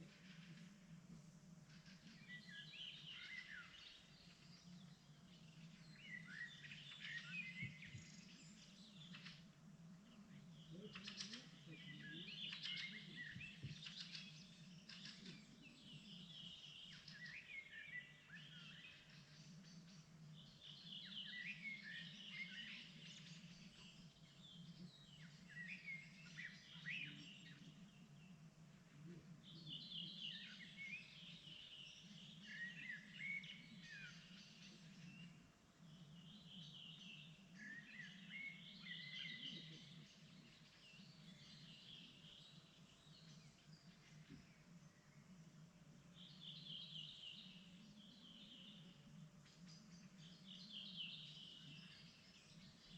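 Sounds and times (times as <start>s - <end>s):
songbirds chirping: 0.0s - 52.9s
steady low hum: 22.7s - 36.6s.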